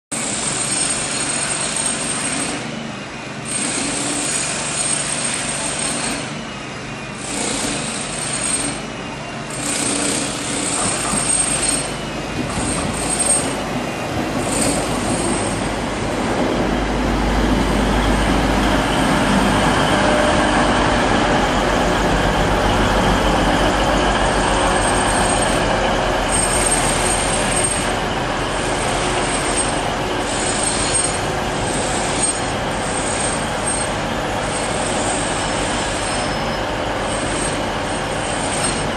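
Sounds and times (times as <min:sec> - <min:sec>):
train engine and wheels drone: 0:00.1 - 0:38.9.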